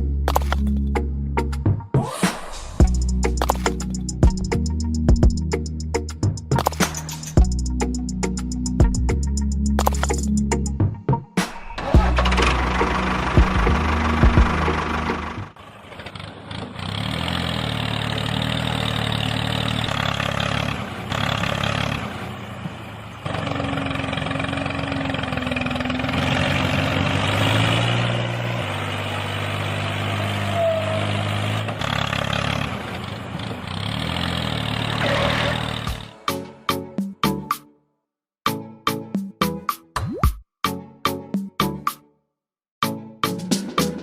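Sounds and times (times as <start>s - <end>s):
engine running: 11.6s - 36.7s.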